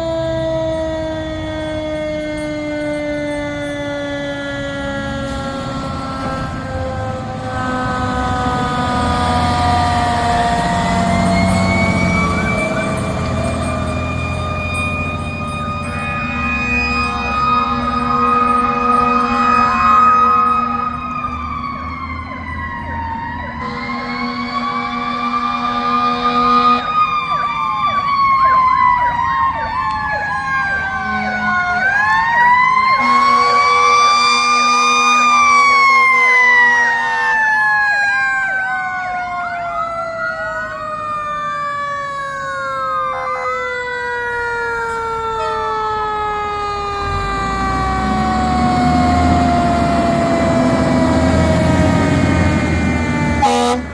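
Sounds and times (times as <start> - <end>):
fire engine siren wailing: 0.0 - 53.9
horn tones: 5.1 - 20.9, 32.8 - 36.4, 47.0 - 53.9.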